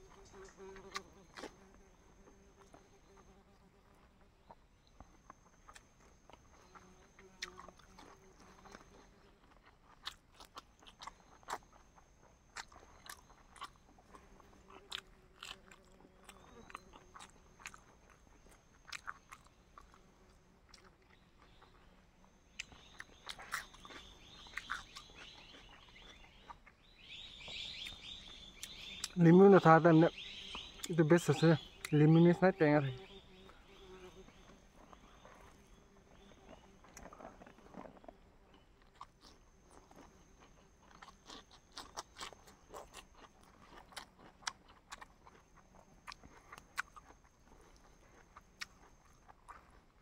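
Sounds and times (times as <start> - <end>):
person biting and chewing food: 5.2 - 21.9, 22.5 - 26.8, 36.5 - 50.0.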